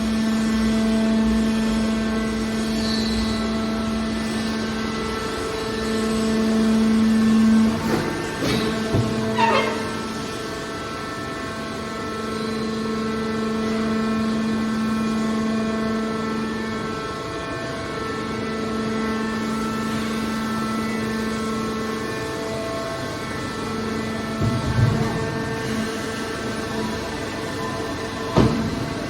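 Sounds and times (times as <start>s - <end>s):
hydraulic baler humming: 3.4s - 13.6s, 20.5s - 29.0s.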